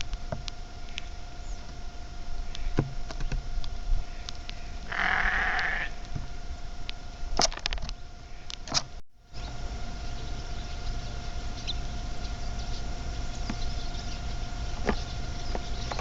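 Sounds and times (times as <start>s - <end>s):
faint steady tone: 0.0s - 16.0s
rough animal call: 4.0s - 6.4s.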